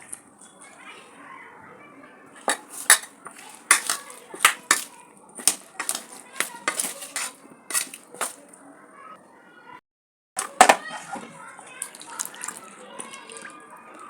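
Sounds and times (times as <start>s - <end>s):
metal utensil clinking on pot: 2.4s - 8.4s.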